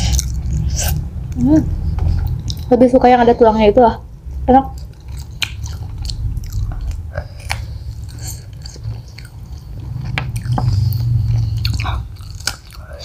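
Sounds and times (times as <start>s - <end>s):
chewing fried chicken: 0.0s - 1.4s, 4.2s - 13.0s
wet mouth sounds: 4.7s - 13.0s.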